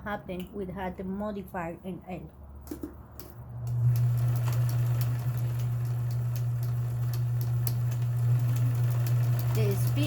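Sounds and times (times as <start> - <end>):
sewing machine motor hum: 3.6 - 10.0.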